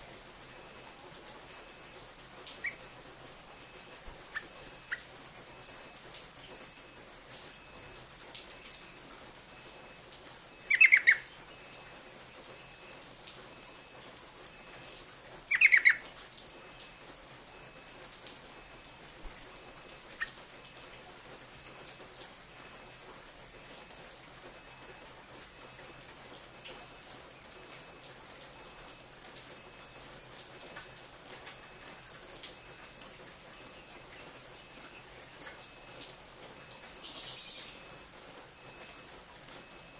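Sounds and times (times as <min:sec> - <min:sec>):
bulbul calls: 0:02.5 - 0:03.0, 0:04.1 - 0:05.2, 0:10.7 - 0:11.3, 0:15.5 - 0:16.1, 0:36.9 - 0:38.0.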